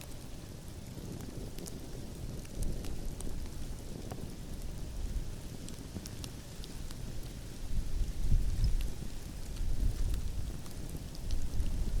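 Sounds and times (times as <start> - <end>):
campfire crackling and popping: 0.0 - 12.0
wind rumble on microphone: 0.0 - 12.0.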